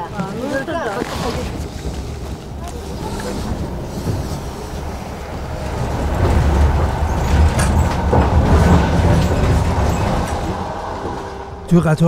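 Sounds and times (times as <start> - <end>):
train carriage rumble: 0.0 - 12.0.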